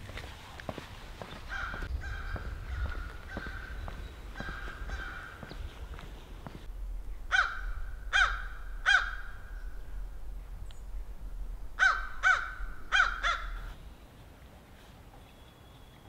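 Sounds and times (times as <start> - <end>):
bird calling: 1.2 - 6.7, 7.3 - 11.0, 11.6 - 14.0.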